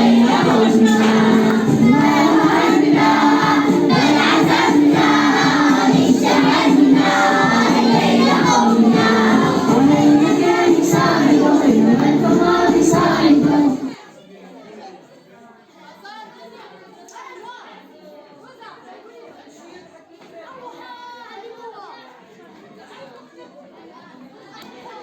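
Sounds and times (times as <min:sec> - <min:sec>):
children singing in chorus: 0:00.0 - 0:14.0.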